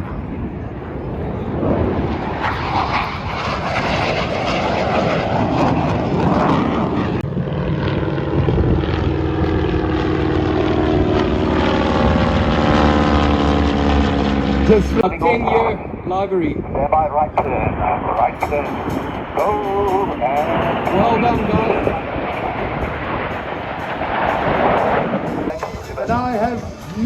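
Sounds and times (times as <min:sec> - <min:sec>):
aircraft engine flypast: 0:00.0 - 0:27.0
humming tone rising in pitch: 0:06.0 - 0:16.0.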